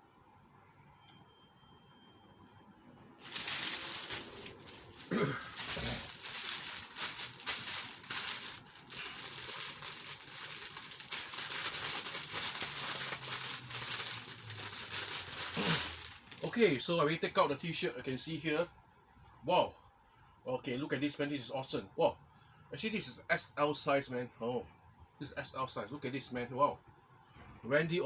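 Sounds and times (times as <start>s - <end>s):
plastic packaging crinkling: 3.2s - 17.2s.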